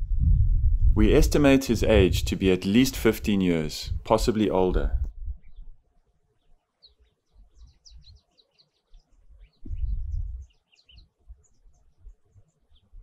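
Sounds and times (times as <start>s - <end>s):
low rumble: 0.0s - 5.8s, 9.6s - 10.5s
small birds chirping: 5.4s - 13.0s.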